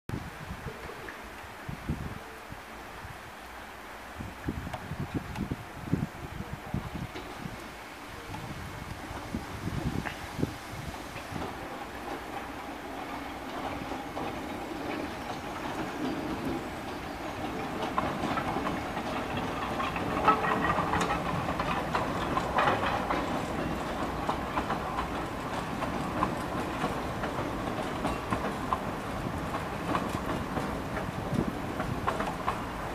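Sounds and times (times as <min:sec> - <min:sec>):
train wheels clattering over joints: 0:06.7 - 0:32.9.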